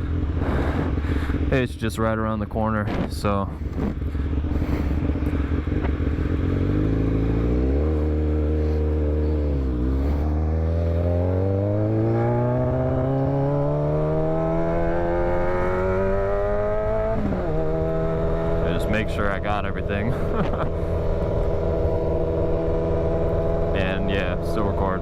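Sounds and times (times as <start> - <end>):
motorcycle engine accelerating: 0.0 - 25.0.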